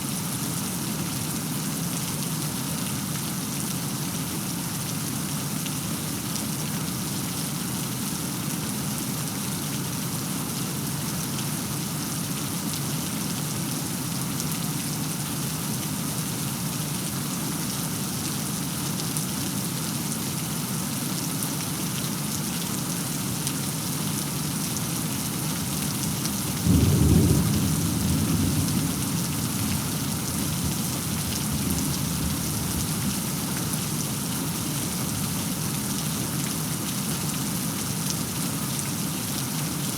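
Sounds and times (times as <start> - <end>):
heavy rain falling: 21.4 - 39.9
thunder clap and rumble: 26.6 - 32.9.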